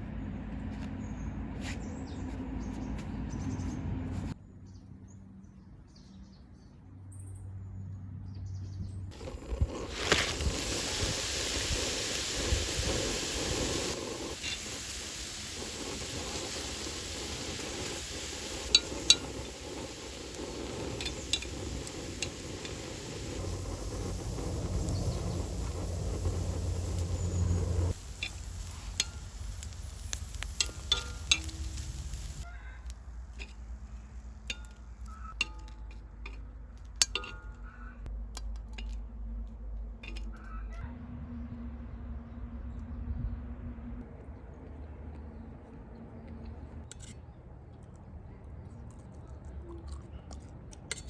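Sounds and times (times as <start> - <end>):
food sizzling in a pan: 9.2 - 32.5
utensils clinking against bowls: 37.0 - 37.7.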